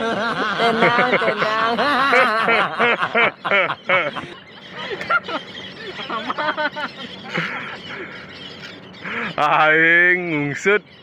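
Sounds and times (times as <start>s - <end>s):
man laughing: 0.0s - 8.2s.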